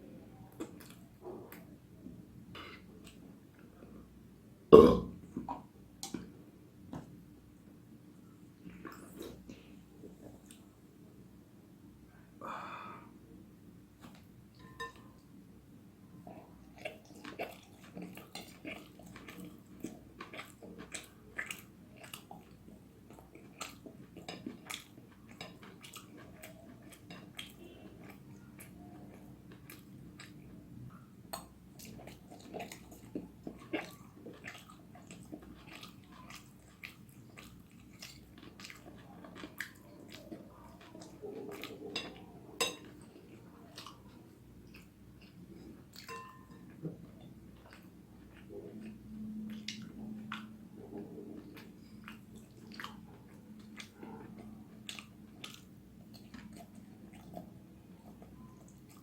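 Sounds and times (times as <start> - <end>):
faint low hum: 0.0 - 59.0
person chewing noodles: 16.6 - 30.5, 31.7 - 59.0.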